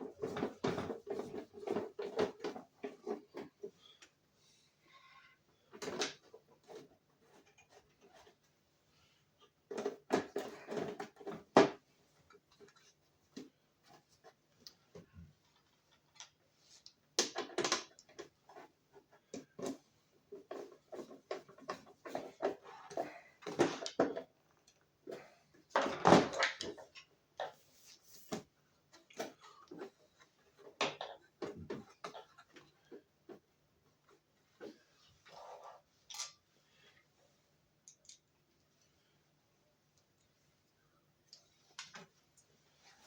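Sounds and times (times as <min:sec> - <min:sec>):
small parts and tools clattering: 0:17.1 - 0:27.6, 0:28.3 - 0:33.4.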